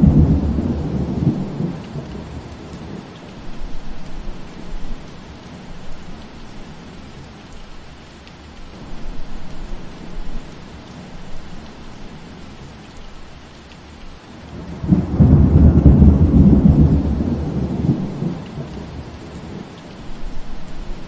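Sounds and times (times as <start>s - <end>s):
thunder rumble: 0.0s - 3.2s, 14.5s - 21.0s
steady rain falling: 0.0s - 21.0s.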